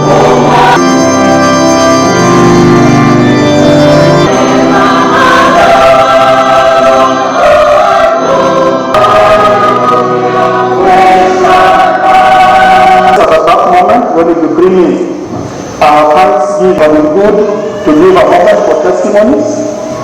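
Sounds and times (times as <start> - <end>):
choir singing gospel music: 0.0 - 14.3
keyboard accompaniment: 0.0 - 15.4.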